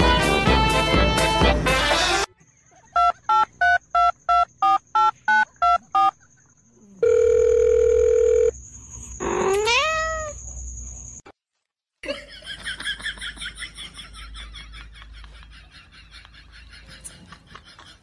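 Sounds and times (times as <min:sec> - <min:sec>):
steady phone tone: 0:07.0 - 0:08.6
cat meowing: 0:09.4 - 0:10.4.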